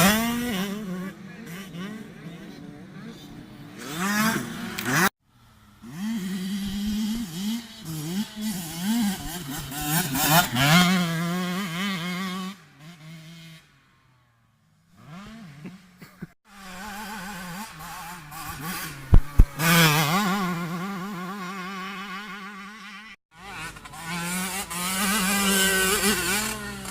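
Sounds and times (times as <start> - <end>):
motocross bike engine revving: 0.0 - 26.9
sharp thumps: 18.8 - 19.8.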